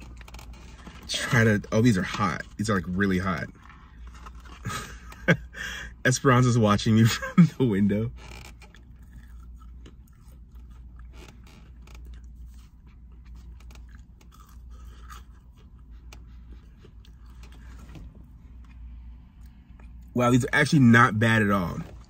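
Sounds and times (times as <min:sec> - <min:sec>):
person chewing crispy chicken: 0:00.0 - 0:05.6, 0:08.4 - 0:20.2.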